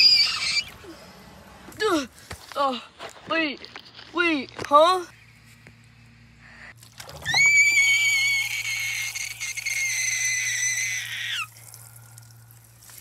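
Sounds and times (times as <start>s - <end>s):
high-pitched scream: 0.0s - 0.8s, 7.2s - 11.6s
watering can splashing on shrub: 11.4s - 13.0s.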